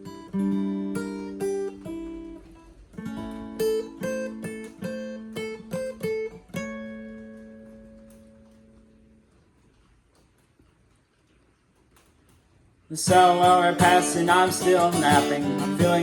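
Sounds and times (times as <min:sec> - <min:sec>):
guitar picking notes and chords: 0:00.0 - 0:09.2, 0:13.1 - 0:16.0.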